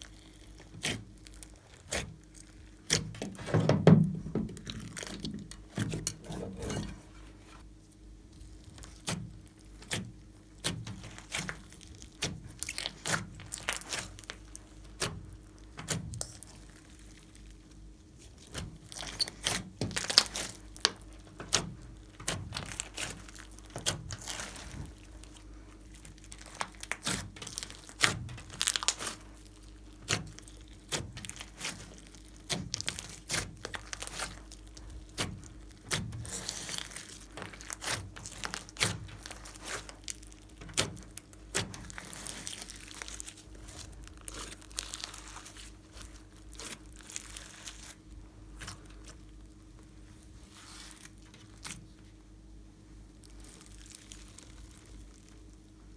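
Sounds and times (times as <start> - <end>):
sticky slime pops and crackles: 18.4 - 48.0.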